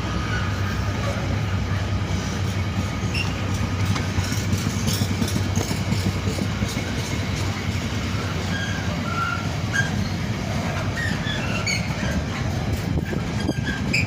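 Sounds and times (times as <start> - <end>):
diesel train engine drone: 0.0 - 14.0
rail noise: 0.0 - 14.0.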